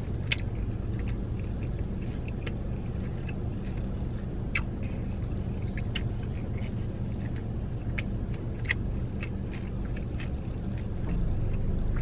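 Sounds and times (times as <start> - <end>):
low hum inside car: 0.0 - 12.0
person chewing crispy chicken: 0.0 - 12.0.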